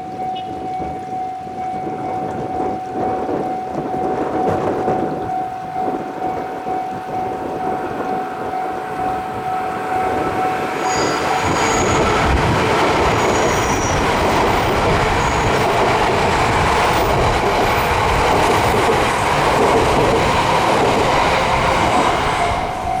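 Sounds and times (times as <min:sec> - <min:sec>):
train rushing over rails: 0:00.5 - 0:23.0.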